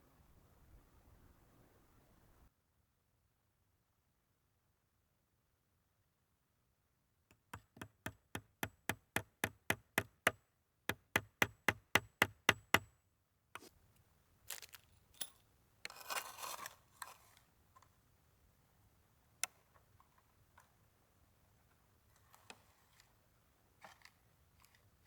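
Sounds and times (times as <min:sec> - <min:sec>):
rustling and handling noise: 0:13.6 - 0:18.0, 0:21.6 - 0:25.0.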